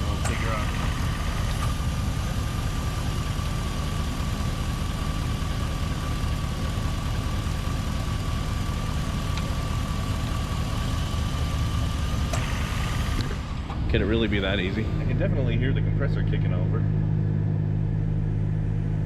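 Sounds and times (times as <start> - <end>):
air-conditioning compressor whine: 0.0 - 19.0
truck engine idling: 0.0 - 19.0.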